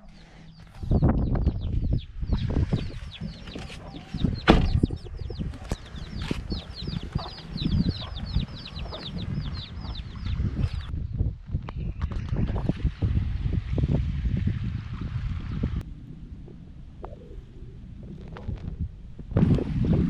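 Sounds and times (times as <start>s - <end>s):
low rumbling: 0.0s - 20.0s
chickens peeping: 0.5s - 10.9s.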